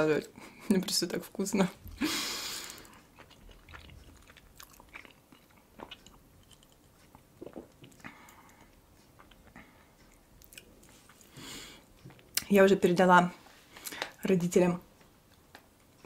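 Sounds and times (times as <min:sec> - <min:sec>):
wet chewing and mouth smacks: 0:01.9 - 0:12.5.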